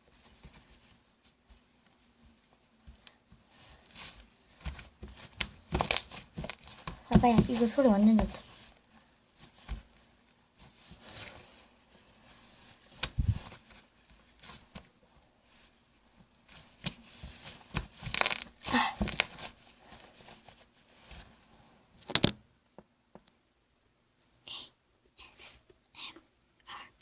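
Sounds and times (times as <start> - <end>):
slime crackling and popping: 17.7 - 19.4, 22.0 - 22.4.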